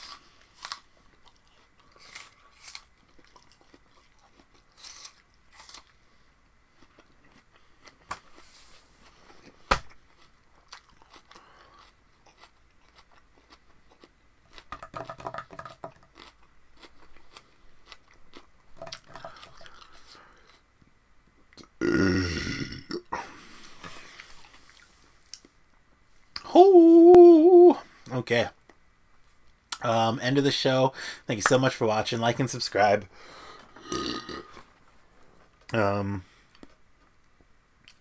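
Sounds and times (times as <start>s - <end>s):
person chewing crunchy vegetables: 0.0s - 20.7s, 33.3s - 34.8s, 35.6s - 37.2s.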